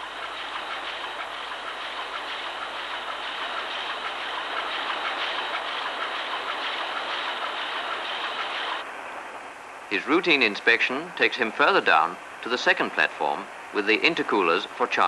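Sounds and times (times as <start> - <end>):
marine diesel engine clattering: 0.0 - 8.8.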